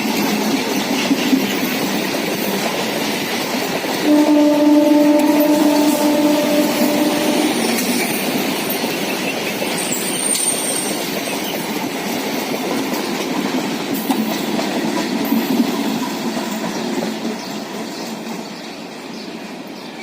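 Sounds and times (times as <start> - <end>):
train rumbling over track: 0.0 - 20.0
train horn: 4.0 - 8.2.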